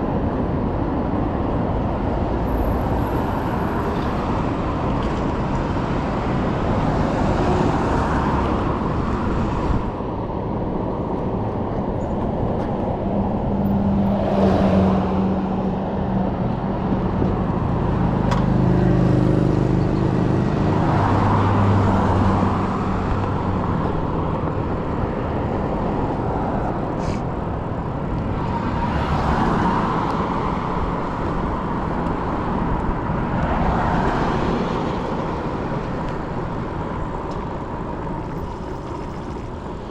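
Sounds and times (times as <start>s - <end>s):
road traffic: 0.0s - 39.9s
wind rush on microphone: 0.0s - 39.9s.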